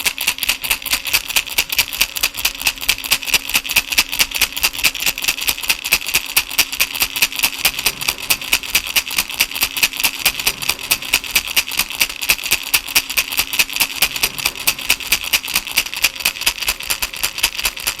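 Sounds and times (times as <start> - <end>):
baby rattle shaken: 3.7 - 18.0.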